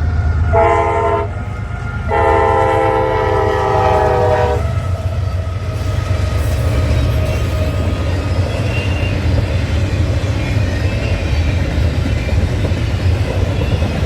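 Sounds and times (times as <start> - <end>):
train rumbling past: 0.0 - 14.0
locomotive air horn: 0.2 - 7.8.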